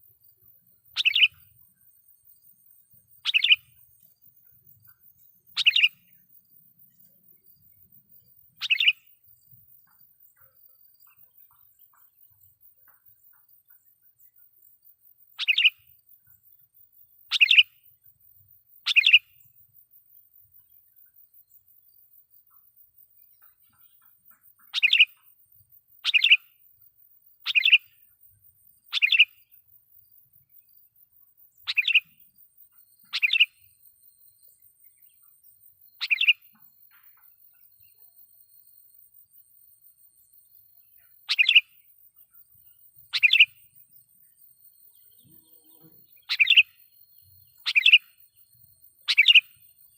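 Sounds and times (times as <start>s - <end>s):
bird call notes: 1.0s - 1.5s, 41.3s - 41.7s, 43.1s - 43.5s, 46.2s - 46.8s, 47.6s - 48.1s, 49.1s - 49.6s.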